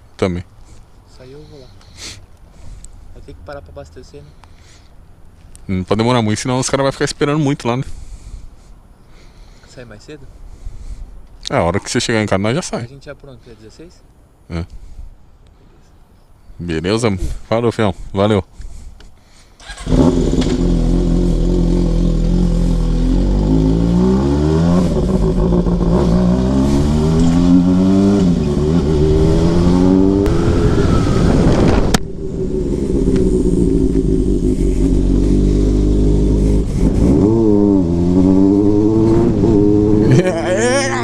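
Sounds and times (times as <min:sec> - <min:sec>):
motorcycle engine accelerating: 0:19.6 - 0:41.0.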